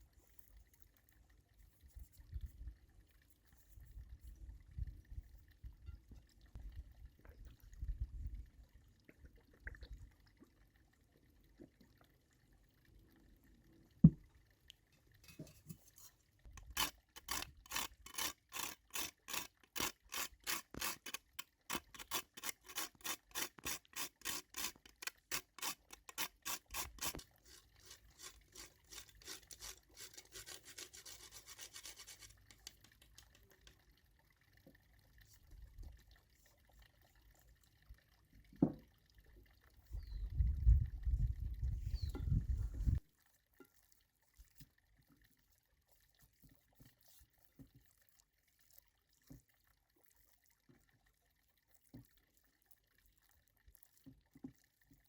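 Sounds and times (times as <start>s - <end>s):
back-and-forth rasping: 16.5s - 33.6s.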